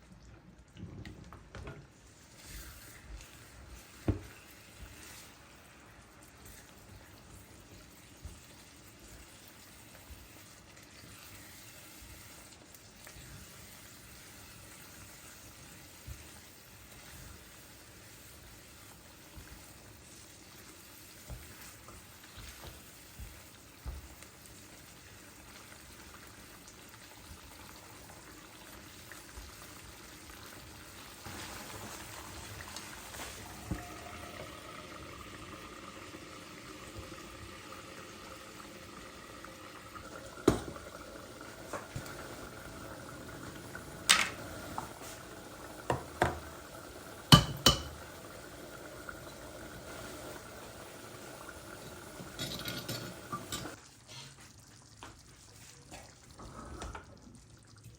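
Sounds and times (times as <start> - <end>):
liquid bubbling in pot: 0.0 - 57.9
kitchenware clinks: 52.4 - 53.8.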